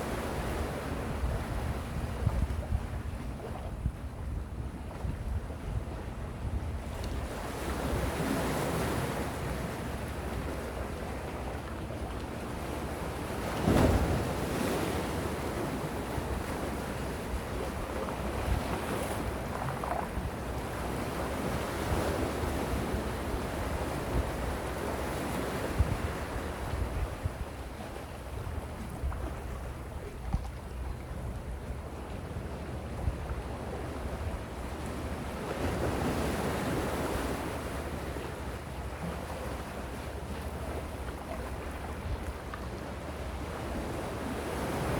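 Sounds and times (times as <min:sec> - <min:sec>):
wind buffeting microphone: 0:01.1 - 0:07.3.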